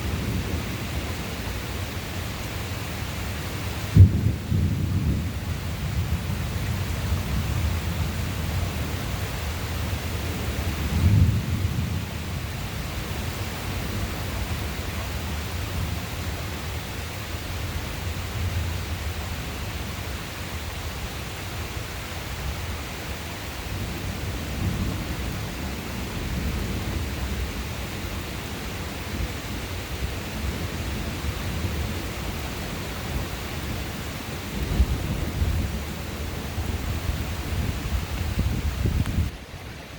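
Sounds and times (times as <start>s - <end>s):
low thunder rumble: 0.0s - 19.6s, 23.6s - 39.4s
steady rain: 0.0s - 39.9s
thunder crack: 4.0s - 5.4s.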